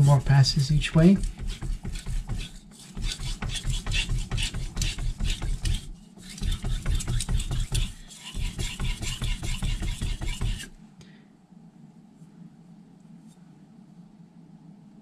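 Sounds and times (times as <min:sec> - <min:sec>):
knife scraping on whetstone: 0:00.0 - 0:10.8.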